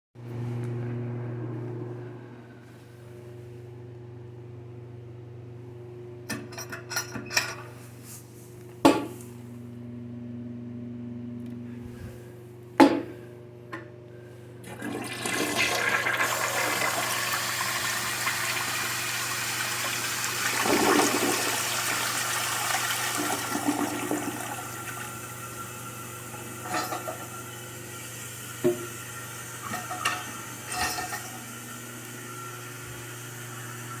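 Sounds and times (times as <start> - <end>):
toilet flushing: 14.6 - 34.0.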